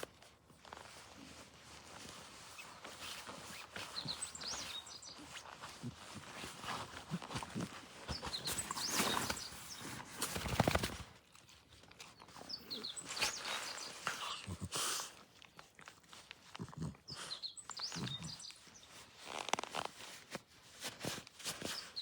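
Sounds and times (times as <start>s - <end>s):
rustling and crunching: 0.0s - 22.0s
bird chirps: 3.8s - 5.4s, 8.1s - 10.8s, 12.2s - 14.4s, 17.1s - 18.9s.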